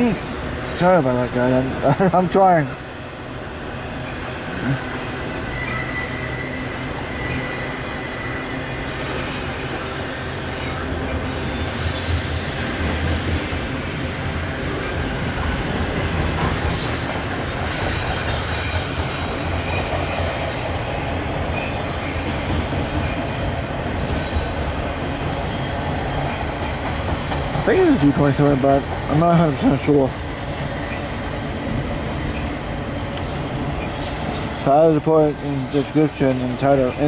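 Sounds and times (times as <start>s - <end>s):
freight train rolling past: 0.0s - 37.0s
high wheel squeals: 5.5s - 13.0s.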